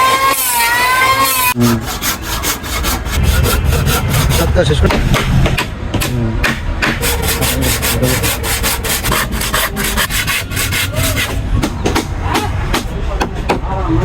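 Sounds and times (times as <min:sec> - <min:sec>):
hand saw cutting wood: 0:01.2 - 0:05.3, 0:06.0 - 0:11.4.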